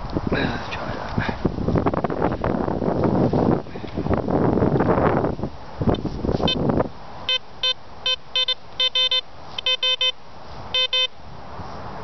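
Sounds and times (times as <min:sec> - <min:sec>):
metal detector beeps: 0:06.4 - 0:06.6, 0:07.3 - 0:11.2.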